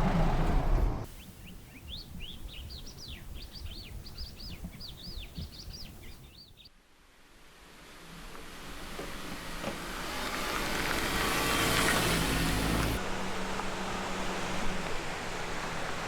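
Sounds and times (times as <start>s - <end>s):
songbird chirping: 1.0s - 6.7s.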